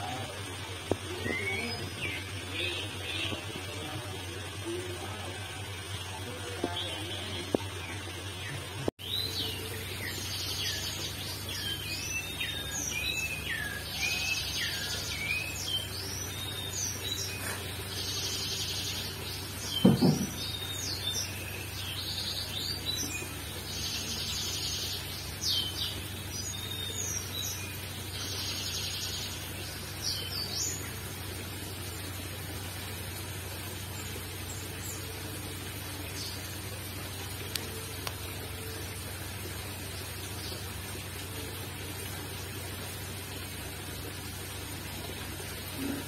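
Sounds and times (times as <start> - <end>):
small birds chirping and trilling: 0.0 - 46.0
dull thump: 19.8 - 20.4.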